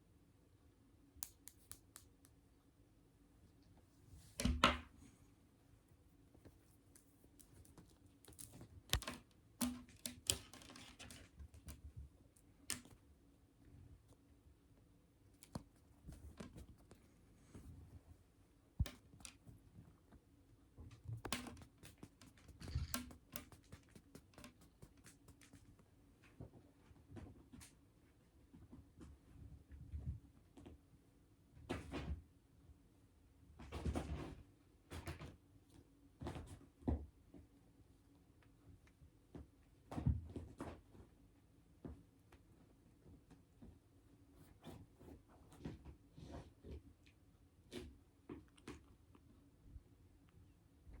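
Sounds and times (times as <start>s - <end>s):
claws clicking on hard floor: 21.2s - 25.7s.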